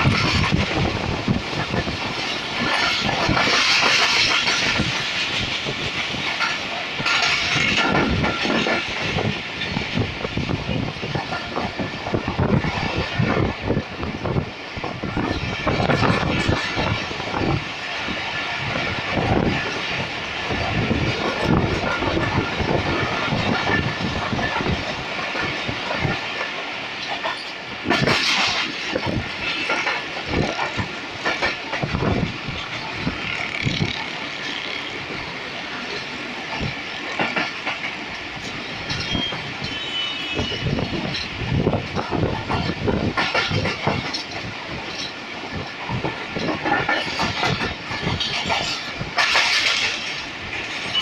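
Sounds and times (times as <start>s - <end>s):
train wheels clattering over rail joints: 0.0s - 51.0s.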